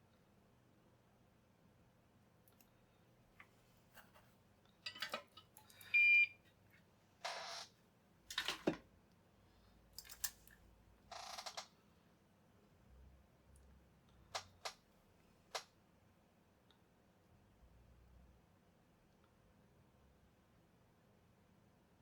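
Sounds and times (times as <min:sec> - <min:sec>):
clicks and knocks of small parts: 0:04.9 - 0:05.9, 0:08.3 - 0:08.8, 0:10.0 - 0:10.6.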